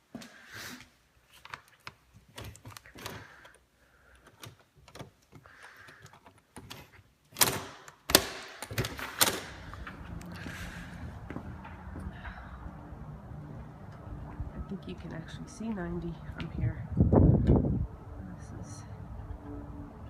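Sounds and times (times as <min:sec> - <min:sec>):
door lock clicks and knocks: 0:06.6 - 0:09.6
steady low background noise: 0:07.1 - 0:20.0.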